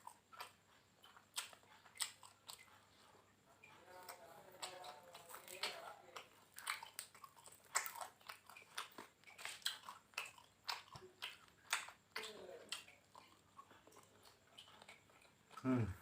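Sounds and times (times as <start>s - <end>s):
chewing and crunching food: 0.0s - 16.0s.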